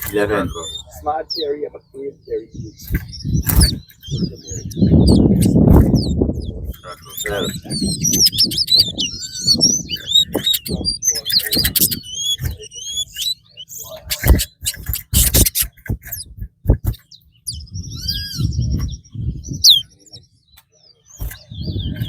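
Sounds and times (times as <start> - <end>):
songbirds chirping and whistling: 0.0 - 22.0
sharp clicks: 2.8 - 4.1, 9.9 - 13.4, 14.0 - 17.1.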